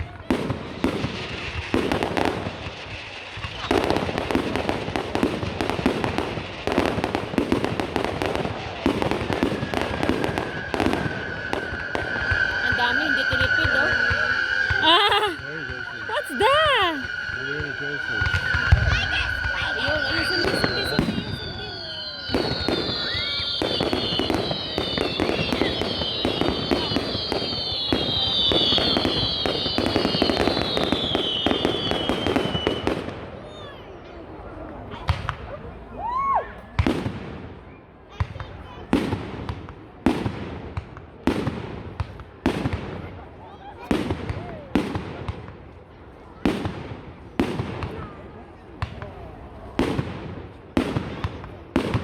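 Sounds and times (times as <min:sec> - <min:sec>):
fireworks crackling bangs: 0:00.0 - 0:35.7, 0:36.7 - 0:52.0
firework whistle: 0:00.3 - 0:39.2.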